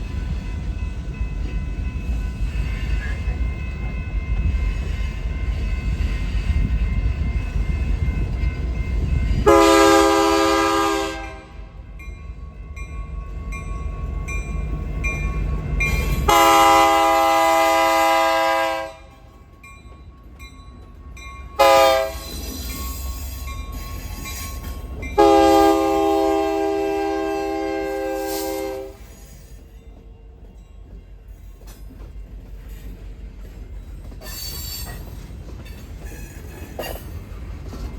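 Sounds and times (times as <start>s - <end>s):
train rumbling: 0.0s - 37.9s
locomotive air horn: 9.4s - 11.7s, 16.2s - 19.2s, 21.6s - 22.3s, 25.2s - 29.1s.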